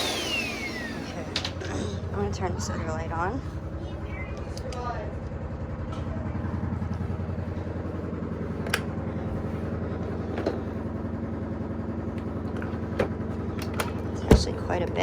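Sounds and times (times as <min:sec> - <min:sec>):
vacuum cleaner running on rug: 0:00.0 - 0:04.2.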